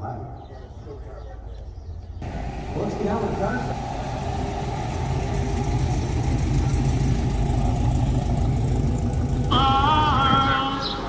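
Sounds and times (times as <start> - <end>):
car engine running slowly: 2.2 - 11.0.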